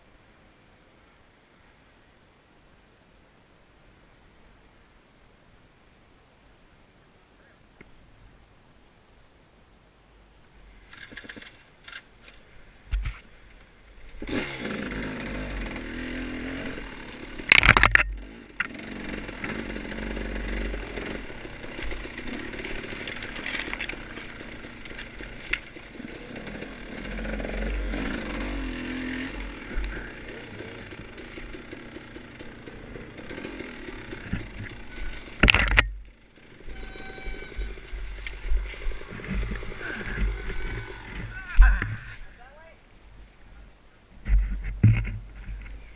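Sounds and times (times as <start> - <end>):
dirt bike engine revving: 14.2 - 42.1.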